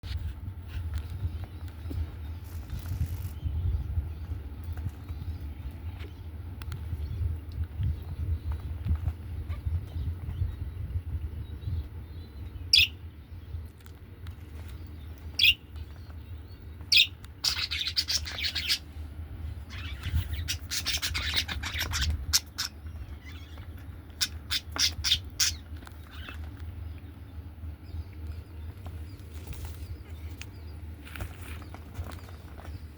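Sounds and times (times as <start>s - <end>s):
steady low hum: 0.0s - 32.9s
budgerigar chirping and chattering: 12.7s - 13.0s, 15.3s - 15.7s, 16.9s - 18.9s, 19.7s - 26.6s.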